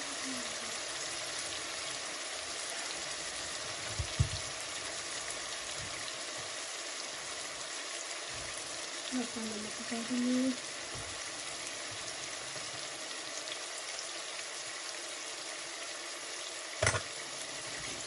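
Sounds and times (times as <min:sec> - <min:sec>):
masala sizzling in oil: 0:00.0 - 0:18.0
low knock: 0:03.9 - 0:04.5.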